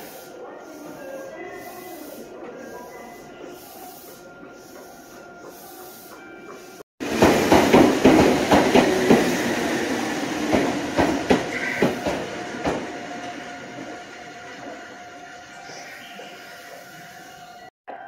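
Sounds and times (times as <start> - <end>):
train wheels clacking over rail joints: 6.5 - 9.6, 10.4 - 14.0.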